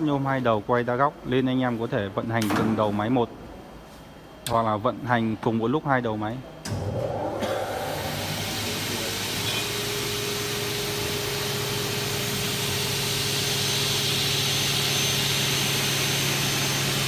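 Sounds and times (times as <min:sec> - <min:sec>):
cutting saw motors humming: 0:06.7 - 0:17.0
saw blade hiss: 0:08.3 - 0:17.0.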